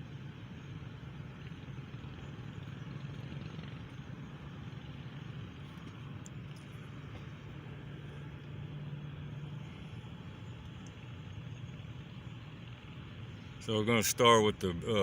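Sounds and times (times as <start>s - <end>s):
low hum with hiss: 0.0s - 15.0s.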